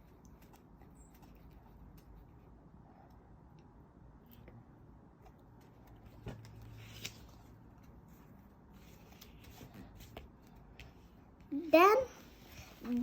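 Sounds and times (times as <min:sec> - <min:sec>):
paper rustling: 0:05.8 - 0:11.0.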